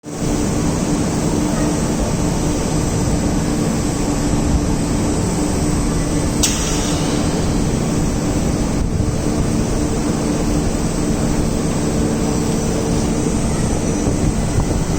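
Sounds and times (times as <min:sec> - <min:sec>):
machinery drone: 0:00.1 - 0:14.9
sharp click: 0:06.4 - 0:08.9.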